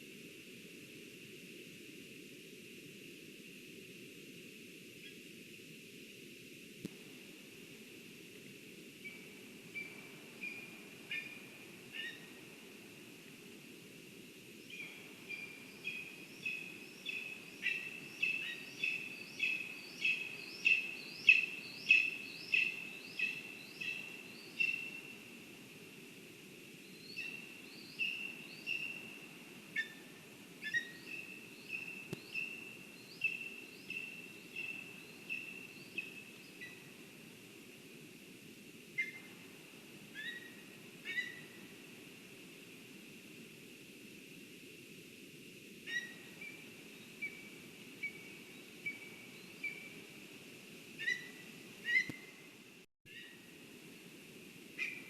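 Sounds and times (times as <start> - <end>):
bird calling: 9.8 - 12.4, 14.7 - 25.1, 27.0 - 29.2, 29.8 - 36.9, 39.0 - 39.3, 40.1 - 41.6, 45.9 - 46.6, 51.0 - 52.5, 54.8 - 55.0.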